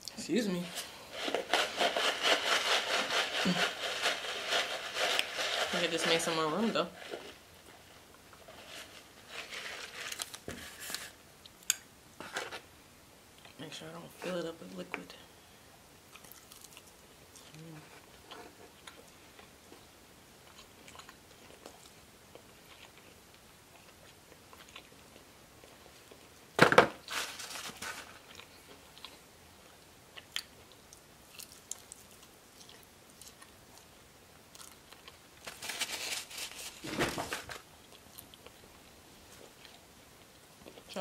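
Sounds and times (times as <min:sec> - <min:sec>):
paper napkin rustling: 0:08.4 - 0:11.2, 0:35.4 - 0:37.6
chewing and mouth clicks: 0:16.1 - 0:17.6, 0:20.4 - 0:26.2.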